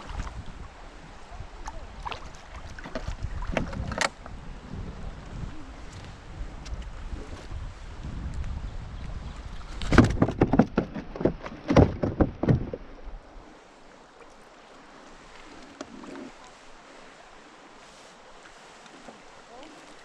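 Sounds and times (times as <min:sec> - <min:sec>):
faint wind: 0:00.0 - 0:20.0
knocks and clatters in a boat: 0:01.6 - 0:04.3, 0:08.3 - 0:13.1
water hiss: 0:13.4 - 0:20.0.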